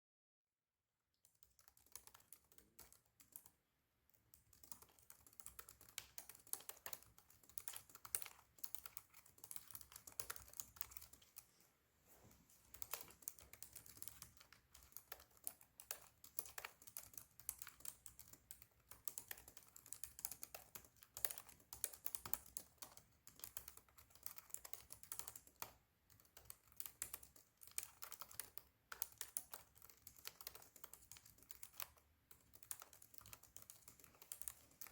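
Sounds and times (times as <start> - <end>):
fast typing on laptop keyboard: 1.3 - 11.5, 12.7 - 34.9.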